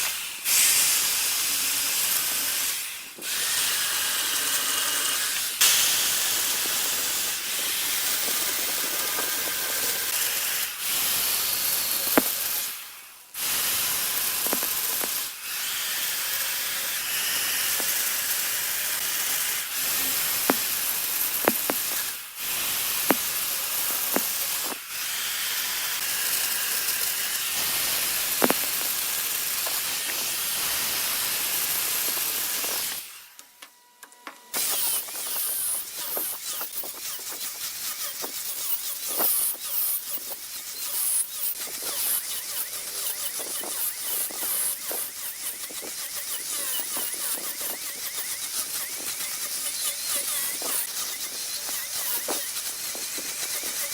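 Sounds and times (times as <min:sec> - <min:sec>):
lathe tool cutting wood: 0:13.4 - 0:33.2, 0:34.6 - 0:53.9.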